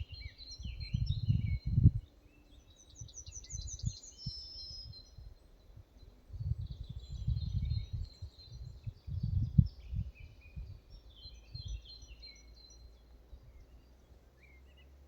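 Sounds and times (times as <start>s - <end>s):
low rumbling wind gusts: 0.0s - 2.2s, 3.0s - 11.9s
songbirds chirping and trilling: 0.0s - 15.0s.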